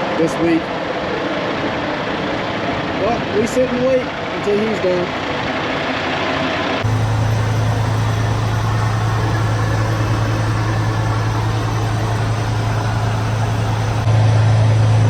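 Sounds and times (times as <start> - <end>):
diesel truck engine running: 6.8 - 15.0.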